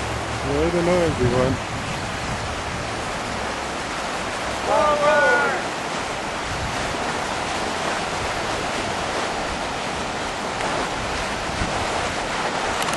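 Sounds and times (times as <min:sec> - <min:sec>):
water rushing through rapids: 0:00.0 - 0:12.9.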